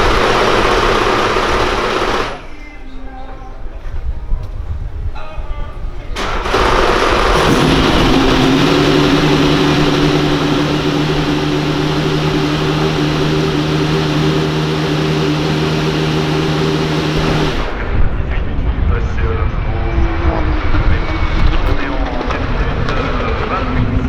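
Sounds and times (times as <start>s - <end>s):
racing car engine running: 0.0s - 2.5s, 6.2s - 17.9s.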